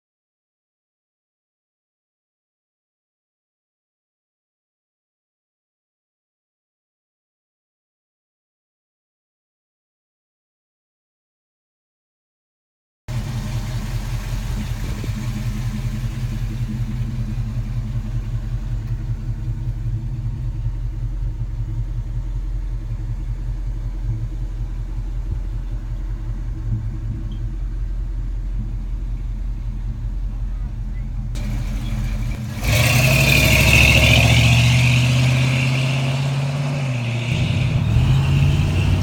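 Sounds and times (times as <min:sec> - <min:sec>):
pickup truck engine rumbling: 0:13.1 - 0:39.0.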